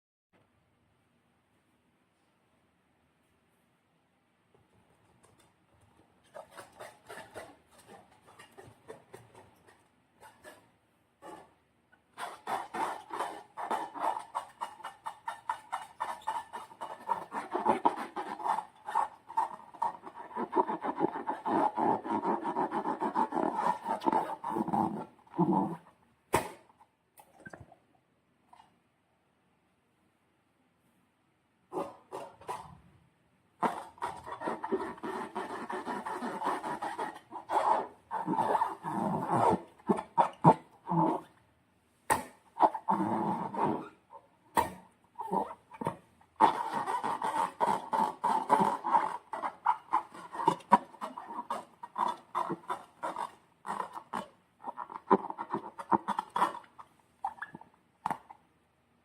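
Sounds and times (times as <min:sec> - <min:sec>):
sharp slime pops: 0:26.3 - 0:26.7, 0:42.1 - 0:42.4.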